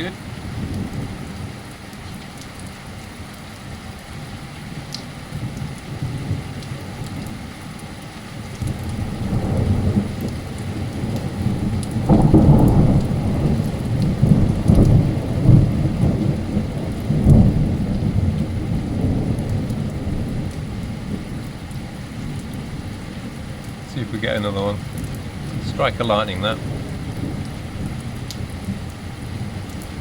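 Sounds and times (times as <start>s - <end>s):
thunder rumbling: 0.0s - 1.7s, 8.3s - 30.0s
heavy rain: 0.0s - 30.0s.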